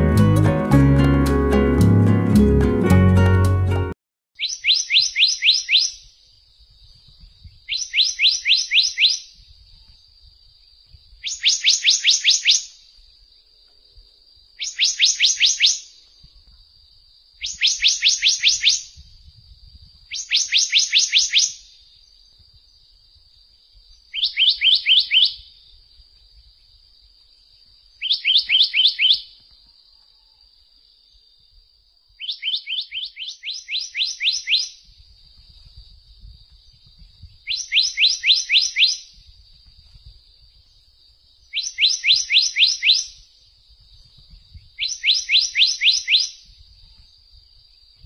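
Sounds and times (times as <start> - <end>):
bird singing whistled notes: 4.4 - 6.2, 6.9 - 10.0, 11.1 - 12.9, 14.6 - 16.1, 17.4 - 19.1, 20.1 - 22.8, 23.9 - 25.7, 28.0 - 29.5, 32.2 - 39.6, 40.4 - 43.3, 43.9 - 47.1.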